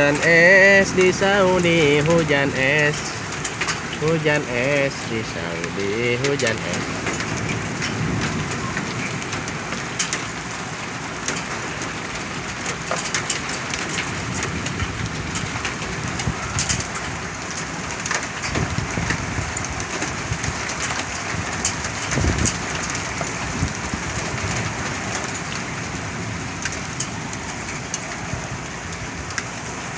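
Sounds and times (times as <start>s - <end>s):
hail and rain on hard surfaces: 0.0s - 29.9s
sharp ticks of hailstones: 0.1s - 29.9s.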